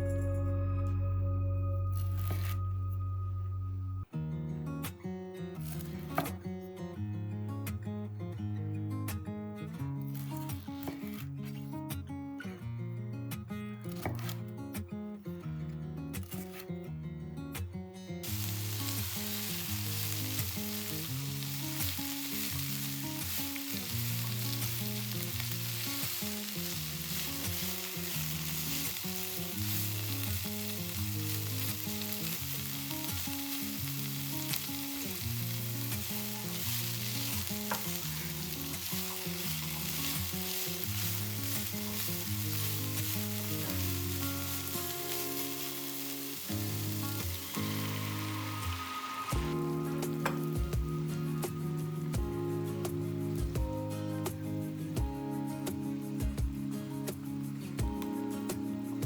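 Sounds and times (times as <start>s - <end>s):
instrumental background music: 0.0s - 7.8s, 13.2s - 15.2s, 16.0s - 59.0s
food sizzling in a frying pan: 5.6s - 6.2s, 18.2s - 52.4s.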